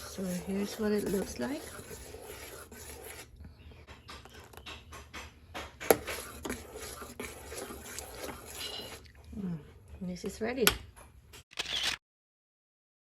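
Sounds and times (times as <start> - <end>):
ticks and scrapes in a pot: 0.0 - 3.4, 4.0 - 9.2.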